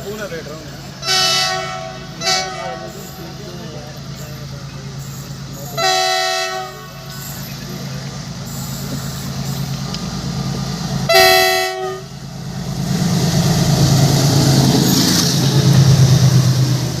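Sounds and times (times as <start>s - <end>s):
train rumbling on track: 0.0s - 17.0s
train horn blast: 1.0s - 3.0s, 5.8s - 7.1s, 11.1s - 12.2s.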